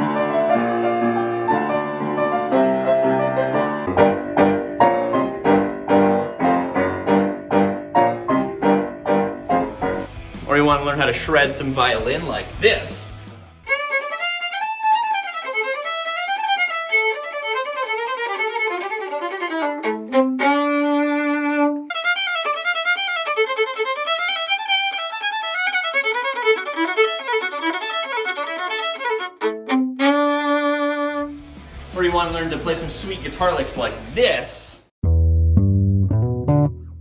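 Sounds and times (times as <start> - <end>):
solo violin played fast: 13.7 - 32.8.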